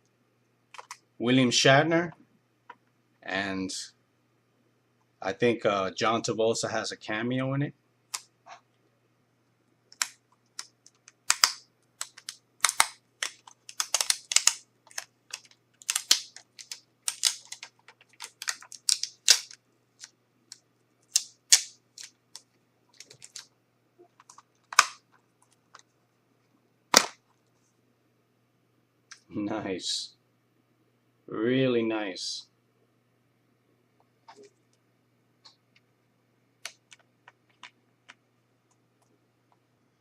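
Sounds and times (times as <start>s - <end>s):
plastic case snapping: 10.0s - 19.6s, 26.9s - 27.2s.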